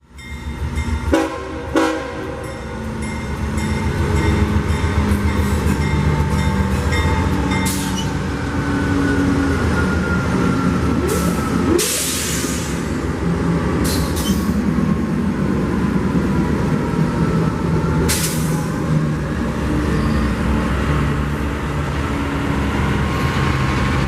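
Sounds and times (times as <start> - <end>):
locomotive horn blasts: 1.1 - 2.5.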